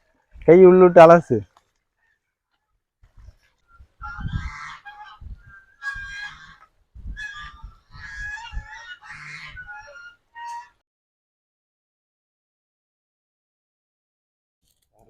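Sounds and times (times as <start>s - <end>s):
farm fowl calling: 3.7s - 10.8s.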